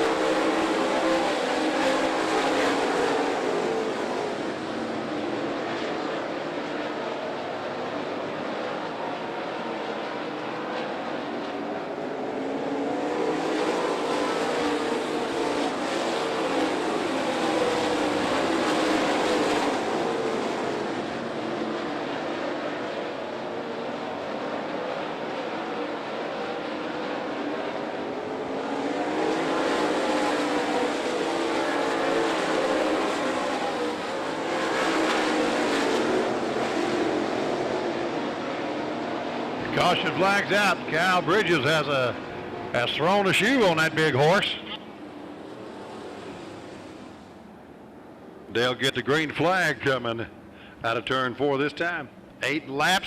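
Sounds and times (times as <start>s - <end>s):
race car engines droning: 0.0s - 53.0s.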